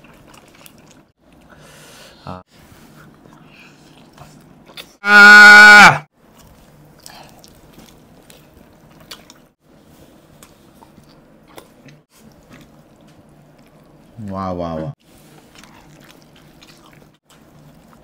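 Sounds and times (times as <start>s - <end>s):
wet chewing with clicks: 0.0s - 1.5s, 3.0s - 5.0s, 6.3s - 9.6s, 10.3s - 14.4s, 15.2s - 18.0s.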